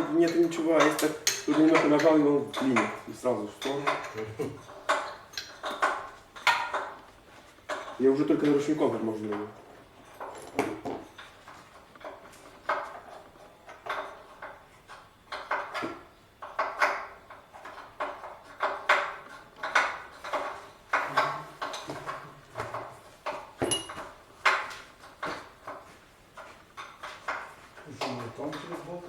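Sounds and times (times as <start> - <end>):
metal tools clanking: 0.0 - 7.0, 23.2 - 24.6.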